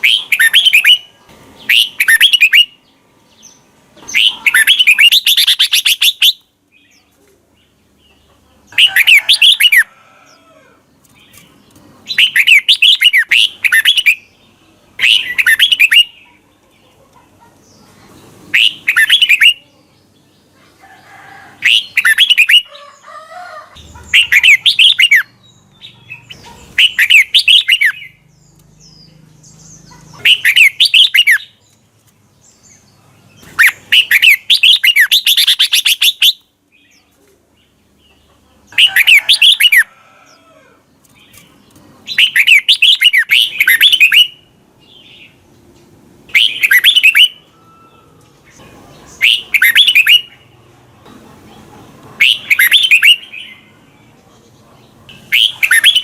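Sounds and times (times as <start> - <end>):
bird warbling: 4.0 - 6.4, 12.1 - 14.2, 15.0 - 16.4, 18.5 - 19.6, 23.8 - 28.2, 29.9 - 31.5, 33.5 - 36.4, 46.3 - 48.1, 49.1 - 50.4, 52.2 - 53.6, 55.1 - 56.0.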